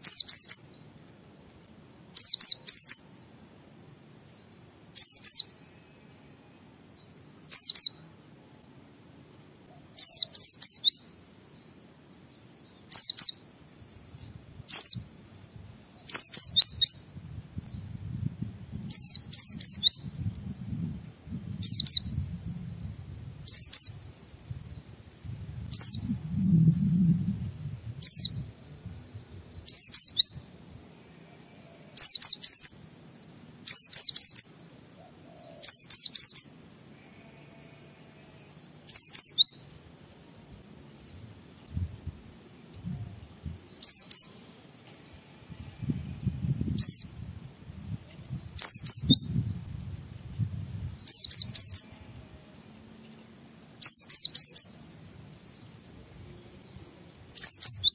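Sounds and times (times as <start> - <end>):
bird chirping: 0.0 - 1.1, 2.1 - 8.2, 9.7 - 18.2, 18.8 - 50.0, 50.8 - 52.3, 53.8 - 57.9
faint low rumble: 13.7 - 29.9.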